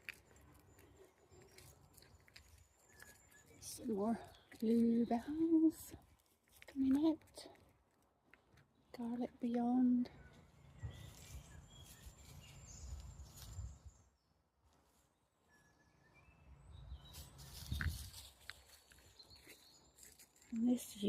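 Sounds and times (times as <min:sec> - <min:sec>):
faint whistled birdsong: 0:02.7 - 0:05.2, 0:10.1 - 0:14.4, 0:15.4 - 0:20.2.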